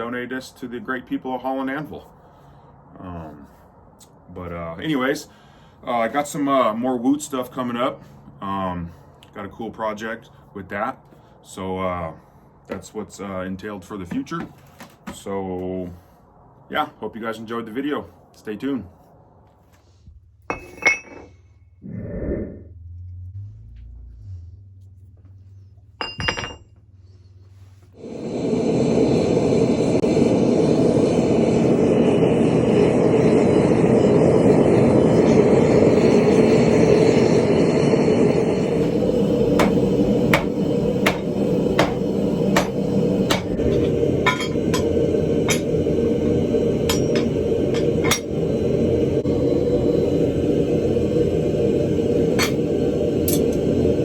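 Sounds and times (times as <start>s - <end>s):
metal clink: 20.5s - 21.3s, 26.0s - 26.7s
hammer blows on anvil: 39.6s - 45.8s, 46.8s - 48.3s.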